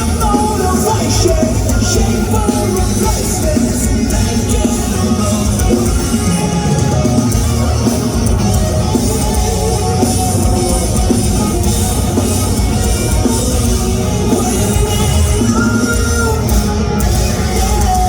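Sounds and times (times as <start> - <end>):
bass guitar: 0.0 - 18.0
distorted guitars: 0.0 - 18.0
driving drum kit: 0.0 - 18.0.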